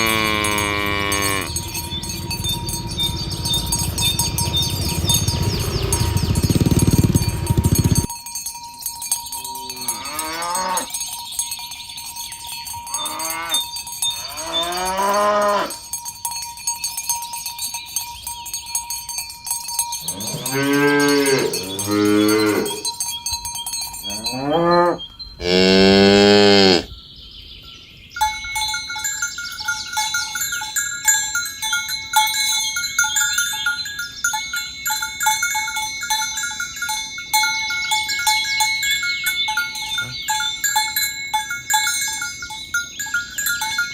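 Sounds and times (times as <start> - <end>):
cattle mooing: 0.0 - 8.1, 20.1 - 22.8, 24.1 - 26.9
cowbells clanking: 0.0 - 26.9, 27.7 - 43.9.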